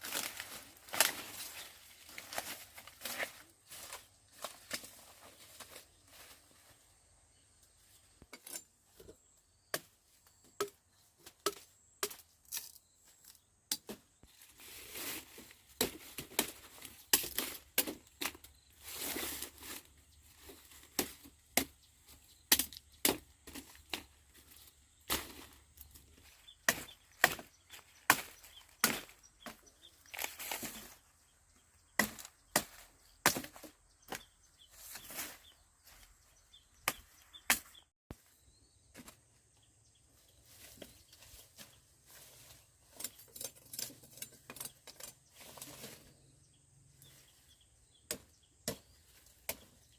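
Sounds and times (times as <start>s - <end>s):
rustling stalks: 0.0s - 10.5s, 12.3s - 49.9s
blade chopping sugarcane: 15.8s - 18.4s, 22.5s - 24.1s, 26.6s - 30.9s, 32.0s - 34.2s, 36.8s - 37.8s.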